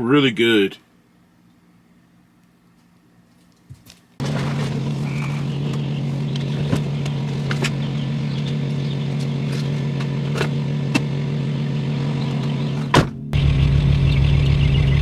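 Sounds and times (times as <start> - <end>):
truck engine humming: 4.2 - 15.0.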